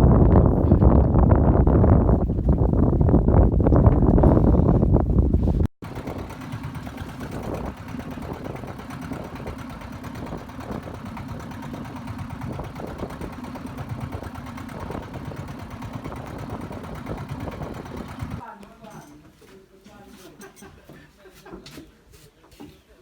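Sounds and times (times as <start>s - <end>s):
loud wind noise: 0.0s - 18.4s
boat engine running: 0.4s - 18.4s.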